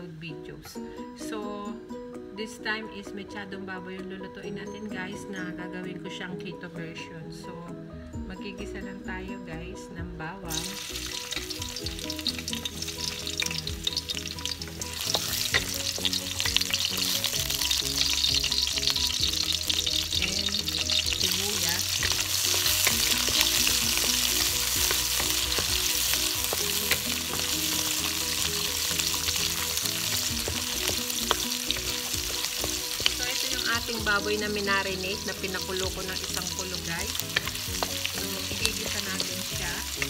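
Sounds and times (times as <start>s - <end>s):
garlic and onion sizzling in oil: 10.5s - 40.0s
wooden spatula stirring: 10.8s - 40.0s.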